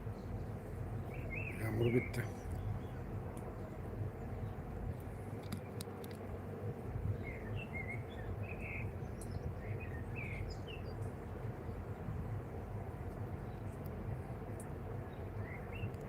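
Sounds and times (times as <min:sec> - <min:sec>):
steady low rumble: 0:00.0 - 0:16.0
small bird chirping: 0:01.0 - 0:03.0, 0:07.1 - 0:11.2
faint clicks: 0:03.3 - 0:03.5, 0:05.0 - 0:06.2, 0:13.1 - 0:14.7.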